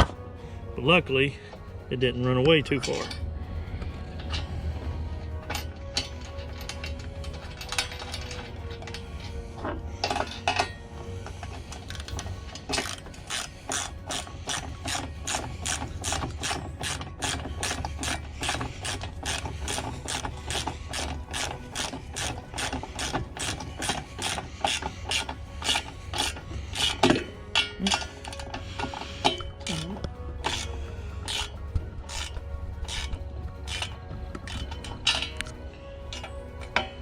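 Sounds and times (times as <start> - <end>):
ratchet wrench clicking: 10.0 - 35.5.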